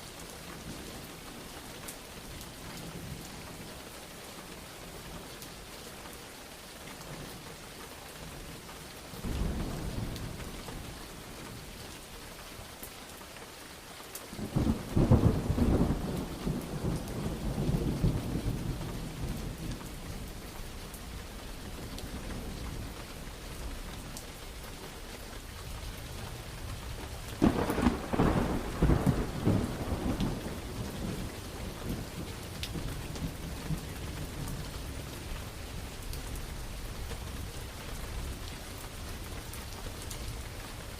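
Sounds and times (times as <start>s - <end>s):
steady rain: 0.0s - 40.9s
thunder rumbling: 14.4s - 23.6s, 26.4s - 39.6s
loud thunder claps: 27.4s - 34.6s.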